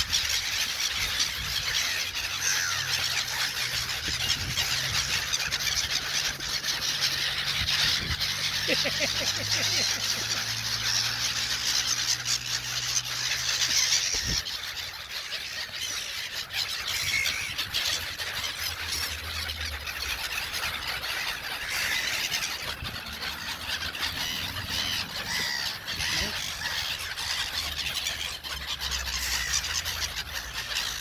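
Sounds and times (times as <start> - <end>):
gulls calling: 0.0 - 31.0.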